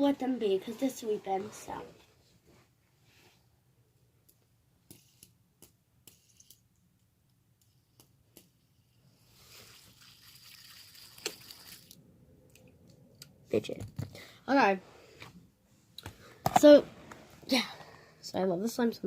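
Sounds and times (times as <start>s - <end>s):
soft hissing: 9.0s - 12.0s.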